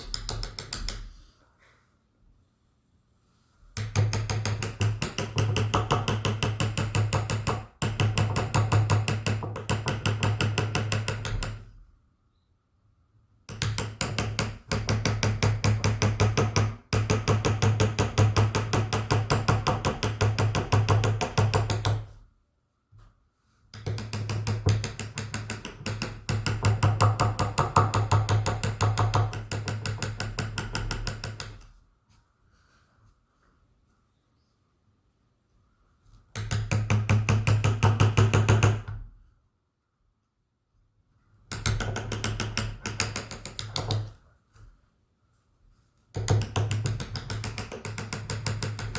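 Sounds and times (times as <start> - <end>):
mallet tapping carving chisel into wood: 0.0 - 1.1, 3.8 - 11.7, 13.5 - 22.2, 23.7 - 31.7, 36.3 - 39.0, 41.5 - 44.2, 46.1 - 48.9.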